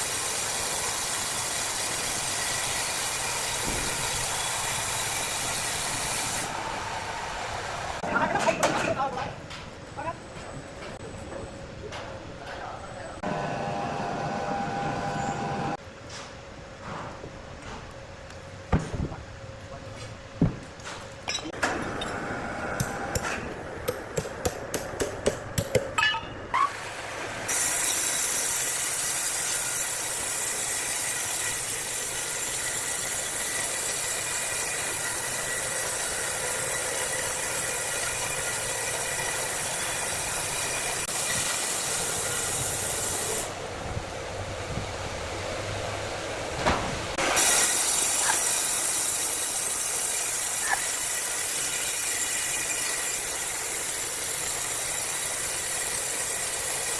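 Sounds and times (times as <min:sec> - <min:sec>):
wood saw cutting timber: 0:00.0 - 0:07.0, 0:27.5 - 0:43.5, 0:47.2 - 0:56.9.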